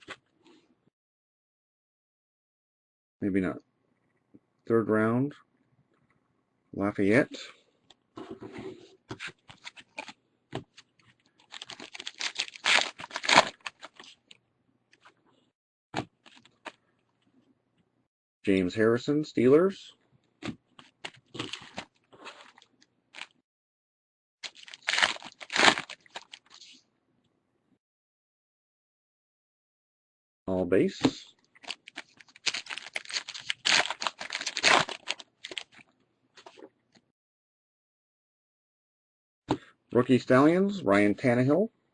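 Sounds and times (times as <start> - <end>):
card pack crinkling and tearing: 9.5 - 10.2, 11.4 - 14.2, 21.0 - 23.4, 24.4 - 26.7, 31.6 - 35.8.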